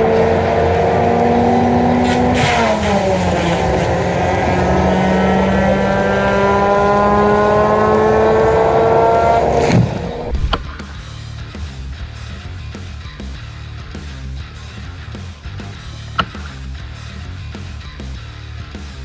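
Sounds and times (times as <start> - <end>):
high-revving machine motor: 0.0 - 10.7.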